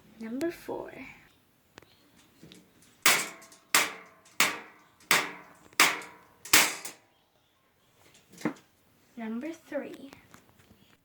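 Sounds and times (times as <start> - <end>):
sharp ringing bangs: 3.1 - 7.0.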